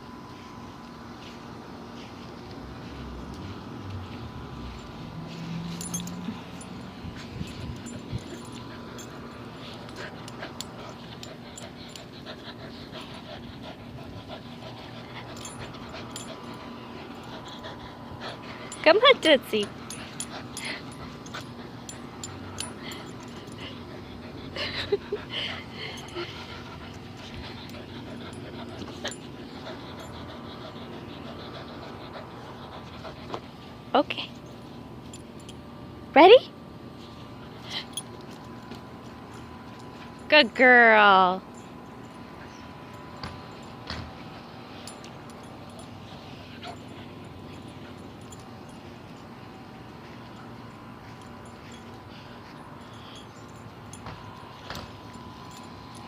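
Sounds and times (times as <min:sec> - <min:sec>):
dog panting: 0:05.7 - 0:33.9, 0:43.4 - 0:49.1.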